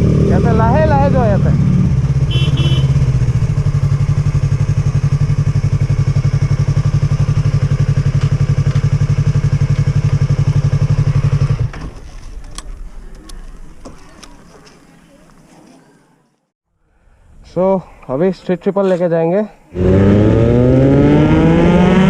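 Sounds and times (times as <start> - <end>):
motorcycle engine idling: 0.5 - 11.7.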